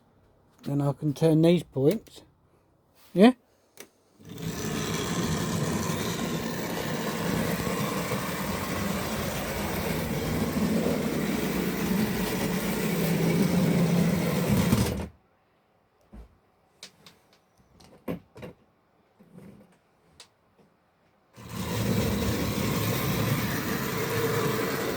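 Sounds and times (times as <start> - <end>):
model train motor running: 4.2 - 15.1, 21.4 - 24.9.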